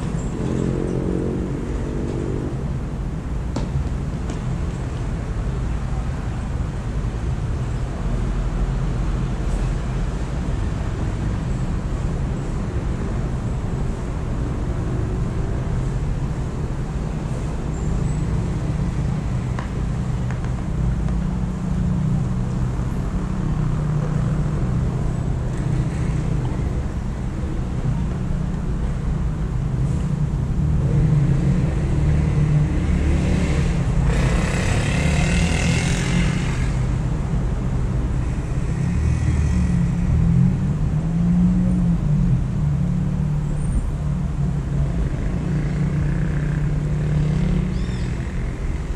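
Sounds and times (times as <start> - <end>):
low rumble of road traffic: 0.0 - 48.9
vehicle passing with hiss: 29.0 - 43.2.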